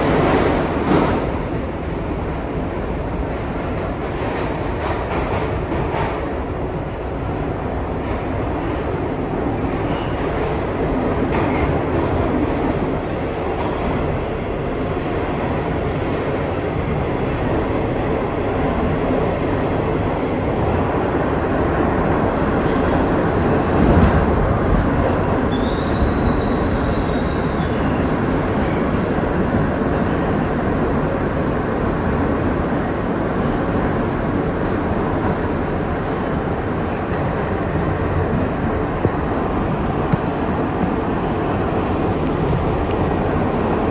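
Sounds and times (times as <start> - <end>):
subway train rumbling on rails: 0.0 - 43.9
high squeal: 25.5 - 28.9.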